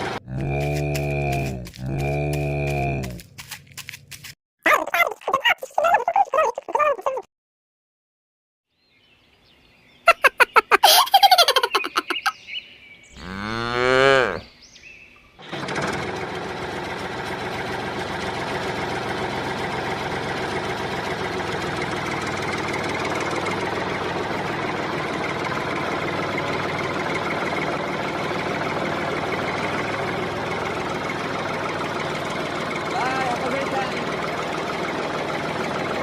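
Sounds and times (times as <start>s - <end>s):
cow mooing: 0.2s - 3.2s, 13.2s - 14.5s
small motor running: 15.4s - 36.0s.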